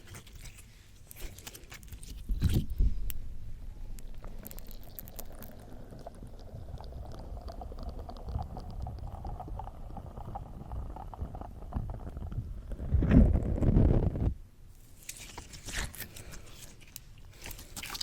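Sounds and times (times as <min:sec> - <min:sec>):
slime squelching with pops: 0:04.0 - 0:12.4, 0:15.0 - 0:18.0.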